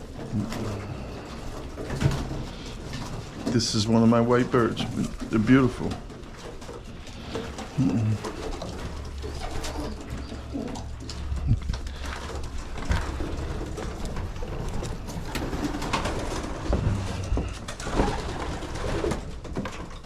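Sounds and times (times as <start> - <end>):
pigeons cooing: 0.0 - 20.0
rustles: 0.0 - 20.0.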